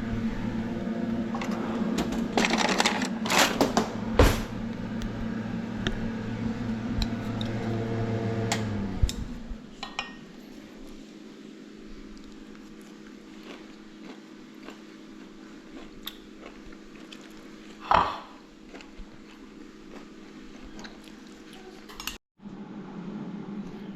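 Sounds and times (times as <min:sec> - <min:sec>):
kitchen appliance hum: 0:00.0 - 0:23.9.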